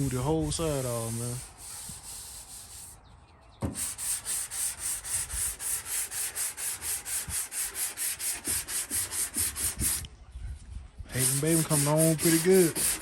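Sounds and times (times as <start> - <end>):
sandpaper sanding car panel: 0.0 - 3.0, 3.7 - 10.0, 11.1 - 13.0.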